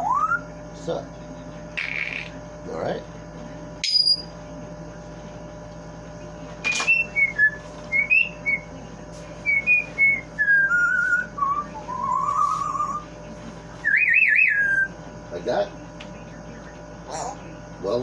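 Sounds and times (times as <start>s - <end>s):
parrot whistling: 0.0s - 0.5s, 3.8s - 4.3s, 6.7s - 8.7s, 9.4s - 13.1s, 13.8s - 15.0s.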